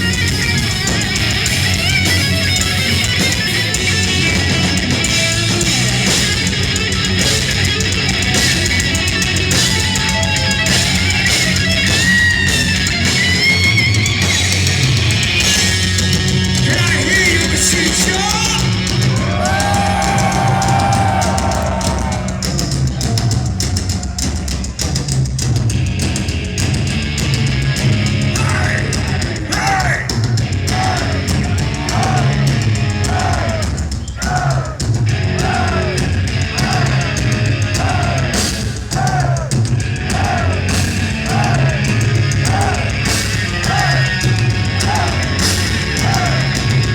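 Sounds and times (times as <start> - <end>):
bending lead guitar line: 0.0 - 23.7, 39.6 - 46.9
heavy metal band playing live: 0.0 - 46.9.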